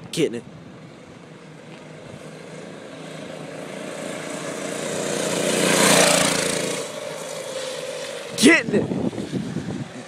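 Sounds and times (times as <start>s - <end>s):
minibike engine passing by: 0.7s - 10.0s.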